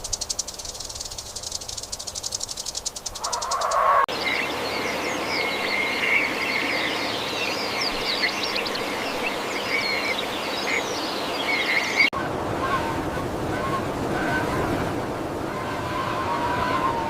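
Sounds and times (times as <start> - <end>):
birds chirping and trilling: 0.0 - 12.7.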